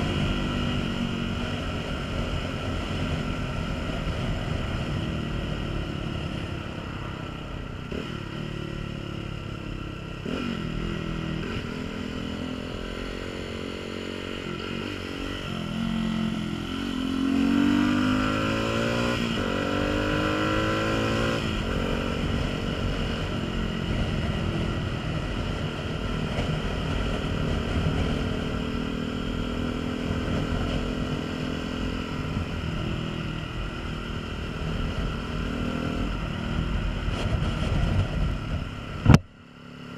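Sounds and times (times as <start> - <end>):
motorcycle engine running: 0.0 - 39.9
wind rumbling on microphone: 32.1 - 39.3.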